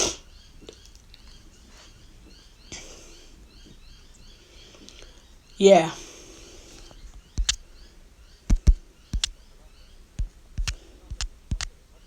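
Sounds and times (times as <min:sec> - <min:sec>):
faint bird chirps: 0:00.0 - 0:12.0
dull thumps and knocks: 0:08.5 - 0:09.3.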